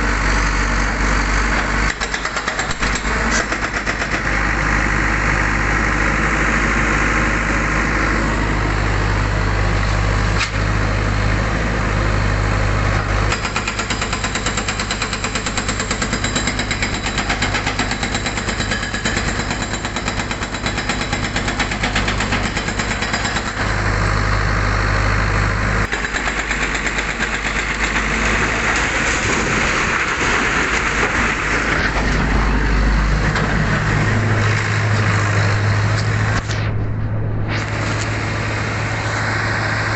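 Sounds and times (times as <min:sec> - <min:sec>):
backhoe diesel engine running: 0:00.0 - 0:39.9
hydraulic breaker hammering: 0:01.5 - 0:04.5, 0:13.3 - 0:23.8, 0:25.8 - 0:32.5.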